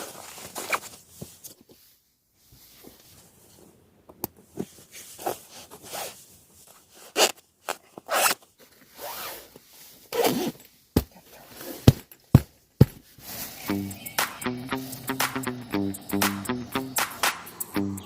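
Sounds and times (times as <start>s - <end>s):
zipper being pulled: 7.0s - 9.5s, 10.1s - 10.6s.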